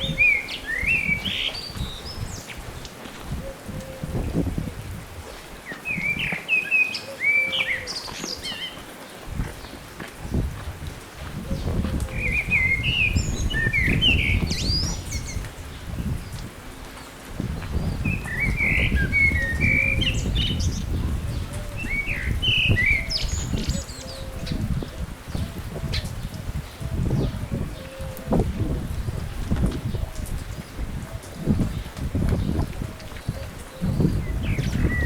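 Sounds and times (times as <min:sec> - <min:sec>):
small birds chirping: 0:00.0 - 0:02.7, 0:11.6 - 0:17.1.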